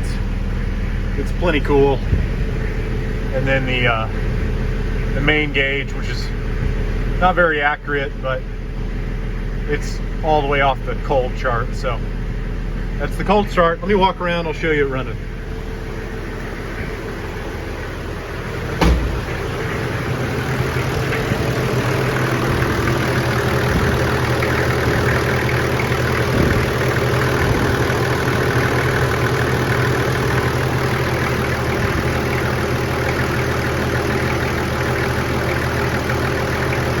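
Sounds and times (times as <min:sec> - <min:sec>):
diesel engine idling: 0:00.0 - 0:37.0
sharp thump: 0:18.8 - 0:19.6.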